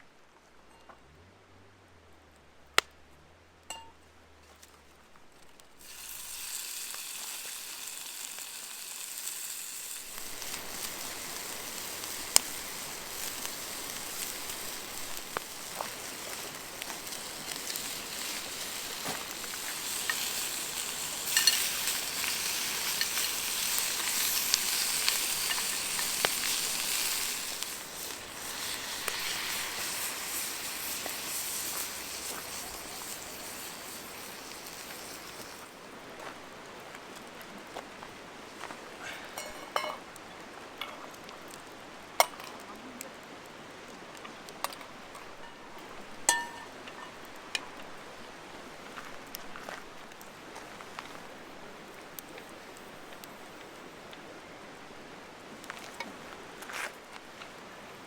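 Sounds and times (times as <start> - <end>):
food sizzling in a pan: 5.8 - 36.5, 38.9 - 40.3, 44.6 - 53.8
utensil clinking in a pan: 17.6 - 30.2, 39.2 - 40.0, 44.7 - 47.7.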